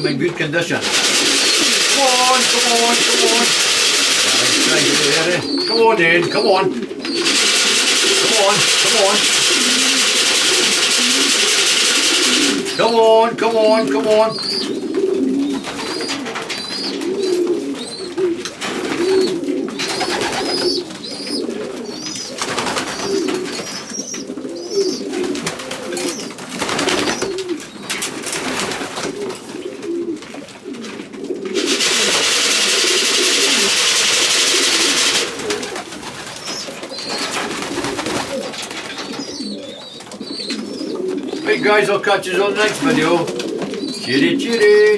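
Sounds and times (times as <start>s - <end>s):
pigeons cooing: 0.0s - 44.9s
loud steady hiss: 0.8s - 5.4s.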